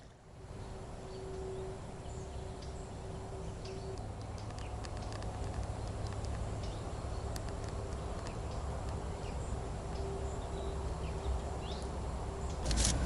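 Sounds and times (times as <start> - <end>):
bird chirps: 0.0 - 5.1.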